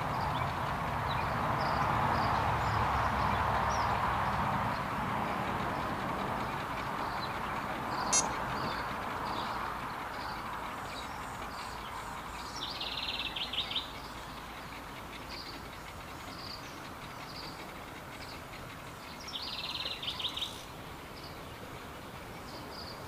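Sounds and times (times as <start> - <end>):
birds chirping: 4.7 - 23.0
buzzy rattling bird trill: 8.0 - 8.8.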